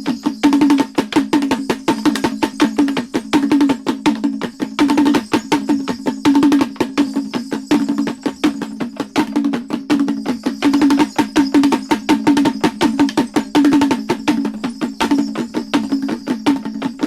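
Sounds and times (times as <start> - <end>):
fast drumming: 0.0 - 17.0.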